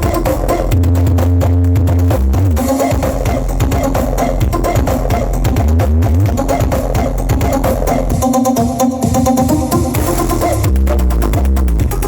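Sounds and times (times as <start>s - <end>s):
electronic dance music with heavy bass: 0.0s - 12.0s.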